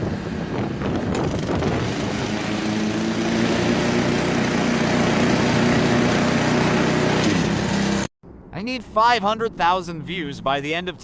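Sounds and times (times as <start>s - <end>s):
small petrol engine running: 0.0s - 8.1s.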